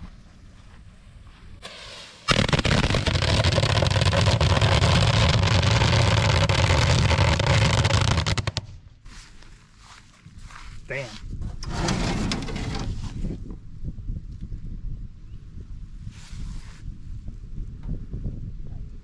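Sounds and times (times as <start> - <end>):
fuse hiss: 1.6 - 2.6
firecrackers banging: 1.6 - 8.7.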